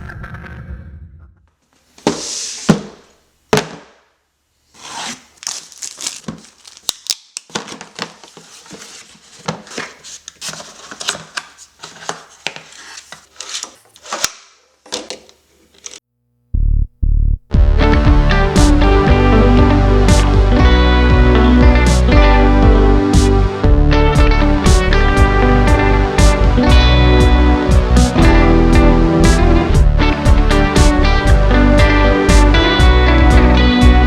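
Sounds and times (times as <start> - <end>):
plastic bags crinkling: 4.8 - 14.2
packaging tearing: 4.8 - 14.4.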